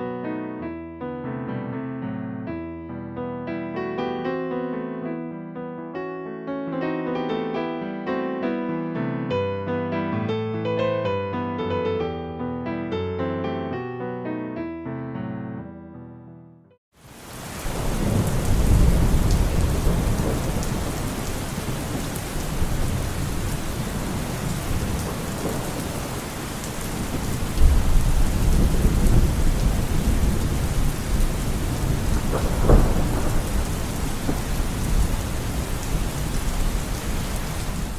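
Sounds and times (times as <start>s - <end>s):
heavy rain: 17.0s - 37.9s
rolling thunder: 17.3s - 37.9s.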